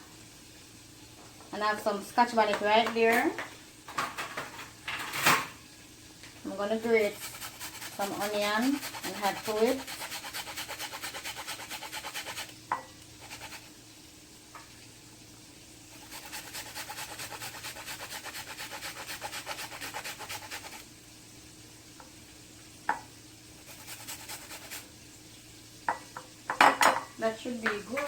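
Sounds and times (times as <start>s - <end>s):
onion rasping on a grater: 6.8s - 12.6s, 13.2s - 13.7s, 15.9s - 20.9s, 23.6s - 24.9s.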